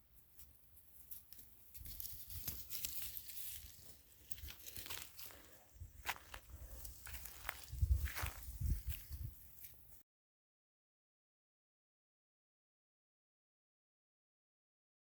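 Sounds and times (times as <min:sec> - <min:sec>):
crackling and rustling: 0:00.4 - 0:05.5.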